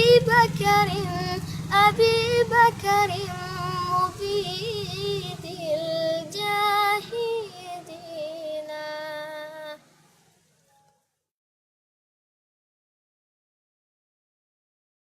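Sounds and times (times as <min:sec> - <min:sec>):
child singing devotional song: 0:00.0 - 0:09.8.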